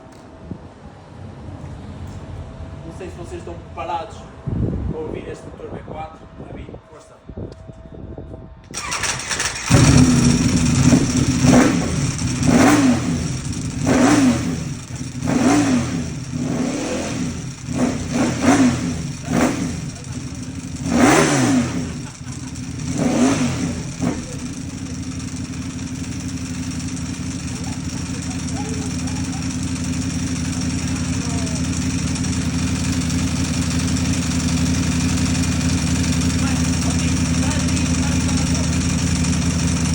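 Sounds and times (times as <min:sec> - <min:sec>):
motorcycle engine revving and idling: 0:08.7 - 0:39.9.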